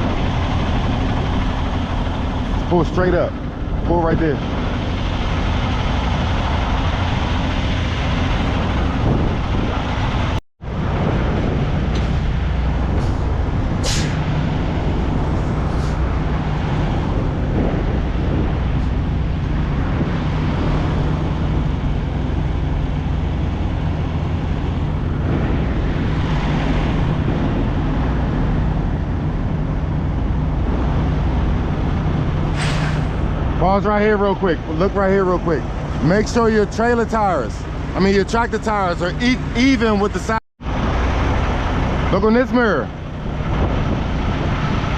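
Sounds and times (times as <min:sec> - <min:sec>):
diesel truck engine running: 0:00.0 - 0:44.9
air brake hisses: 0:13.8 - 0:14.3, 0:32.5 - 0:33.2.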